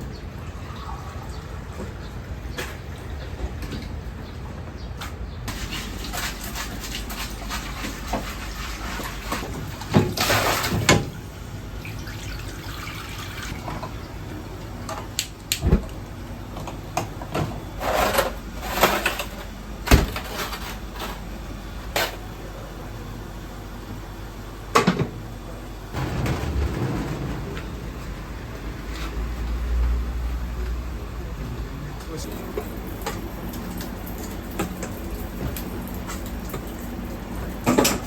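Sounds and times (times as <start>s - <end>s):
steady low hum: 14.0s - 37.7s.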